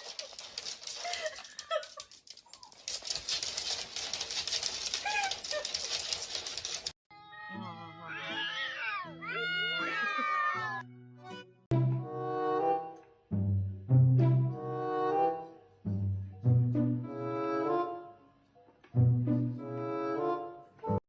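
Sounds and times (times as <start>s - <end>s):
rustling: 0.0s - 7.0s
background music: 7.1s - 21.0s.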